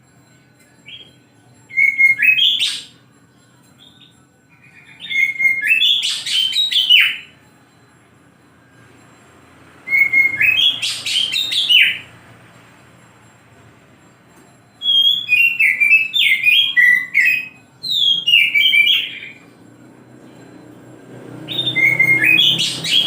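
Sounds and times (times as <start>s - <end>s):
bird singing whistled notes: 0.8s - 3.0s, 3.7s - 7.4s, 9.7s - 12.3s, 14.8s - 23.0s.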